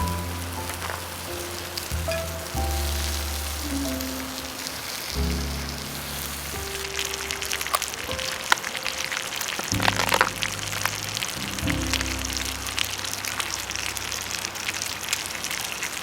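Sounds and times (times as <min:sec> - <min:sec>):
background music with bass: 0:00.0 - 0:04.4, 0:05.2 - 0:07.3, 0:09.8 - 0:14.6
campfire crackling and popping: 0:00.0 - 0:16.0.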